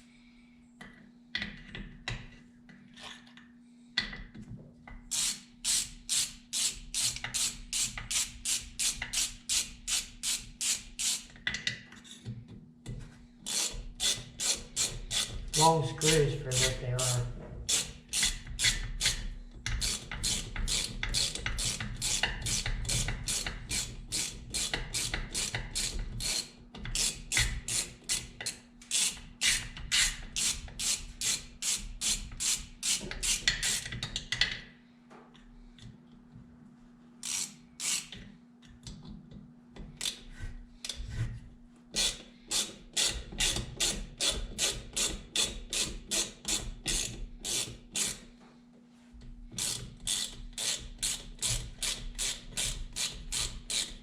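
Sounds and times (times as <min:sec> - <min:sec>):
ratchet wrench clicking: 0:05.1 - 0:11.2, 0:37.2 - 0:38.2, 0:49.6 - 0:53.9.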